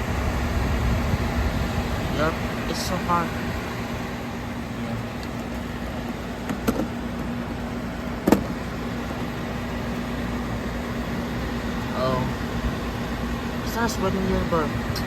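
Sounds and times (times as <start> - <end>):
air conditioner running: 0.0 - 15.0.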